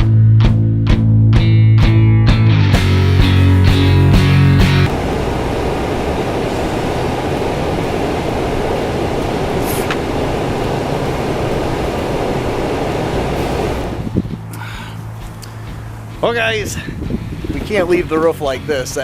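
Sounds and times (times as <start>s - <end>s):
music: 0.0s - 4.9s, 14.0s - 19.0s
vehicle engine rumbling: 2.8s - 18.6s.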